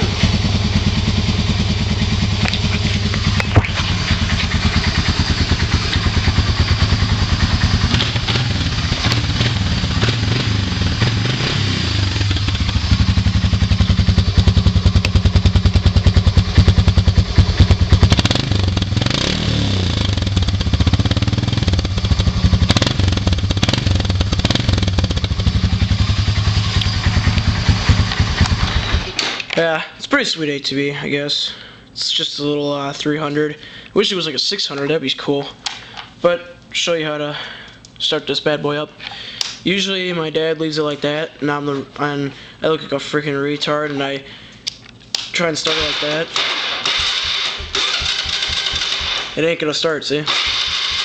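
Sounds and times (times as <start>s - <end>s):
atv engine idling: 0.0s - 29.2s, 45.7s - 46.2s, 46.9s - 49.5s, 50.3s - 51.0s.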